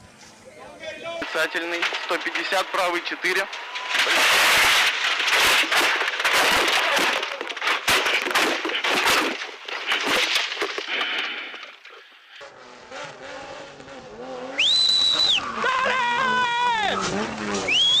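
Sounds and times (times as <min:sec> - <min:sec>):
gravel striking car body: 0:01.2 - 0:12.0, 0:16.9 - 0:18.0
rally car crashing: 0:01.2 - 0:12.3, 0:14.6 - 0:18.0.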